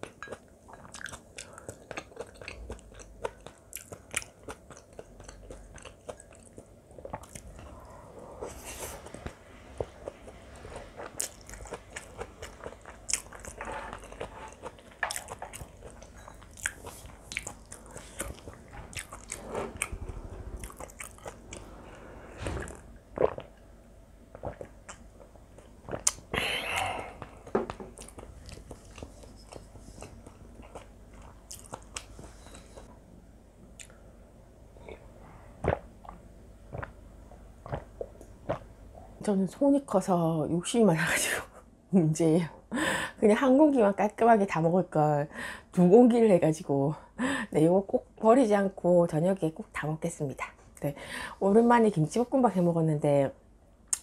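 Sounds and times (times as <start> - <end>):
chewing with wet mouth clicks: 0.0 - 7.7, 11.0 - 19.9, 28.0 - 32.6, 33.8 - 34.0.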